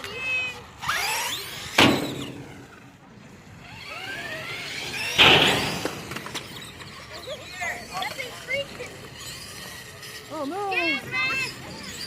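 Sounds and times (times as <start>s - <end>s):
loud rushes of noise: 0.8s - 10.3s
electric motor whining: 0.8s - 12.0s.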